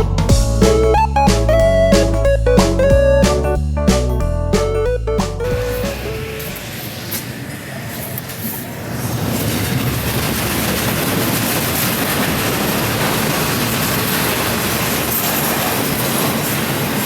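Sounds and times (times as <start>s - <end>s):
train wheels rumbling on rails: 5.6s - 17.0s.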